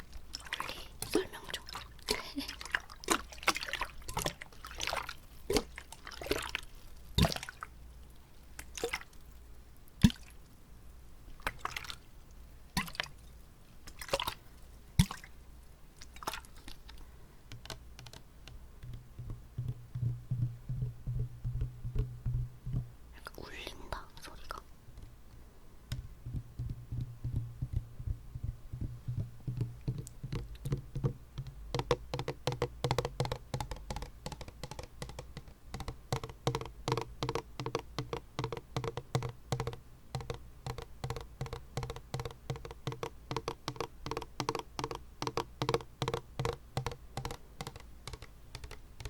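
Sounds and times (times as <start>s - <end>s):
soft clicks and taps: 16.0s - 49.0s.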